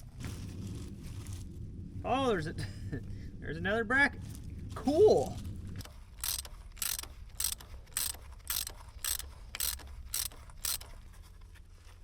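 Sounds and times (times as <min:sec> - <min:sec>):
ratchet wrench clicking: 0:06.2 - 0:11.0.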